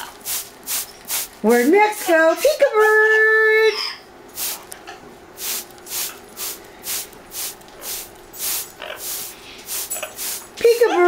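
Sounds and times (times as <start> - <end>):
spray bottle hissing: 0.0 - 1.4, 4.3 - 4.7, 5.4 - 10.8.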